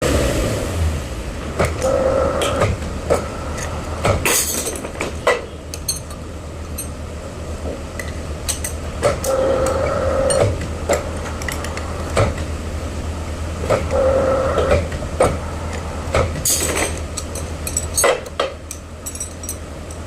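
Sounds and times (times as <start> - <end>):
heavy machine engine rumbling: 0.0 - 20.0
metal clanks and knocks: 2.4 - 7.0, 16.1 - 20.0.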